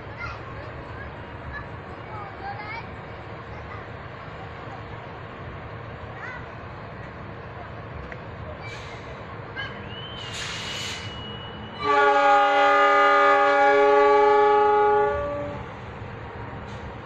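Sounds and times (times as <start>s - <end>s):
thin high whistle tone: 9.8s - 11.9s
short hiss: 10.2s - 11.3s
train air horn blast: 11.8s - 15.7s.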